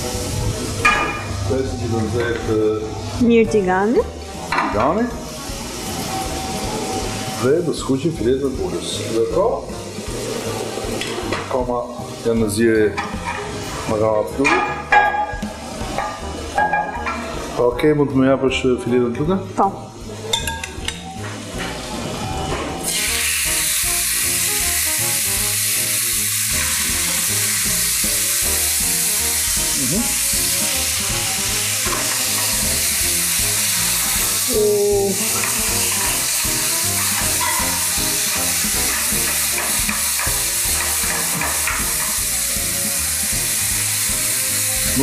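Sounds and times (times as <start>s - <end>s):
chicken sizzling in frying pan: 0.0s - 3.2s, 4.2s - 17.6s, 22.8s - 45.0s.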